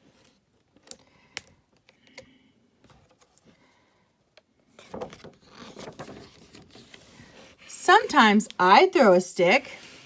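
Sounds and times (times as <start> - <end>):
picture book page turning: 4.8 - 8.6.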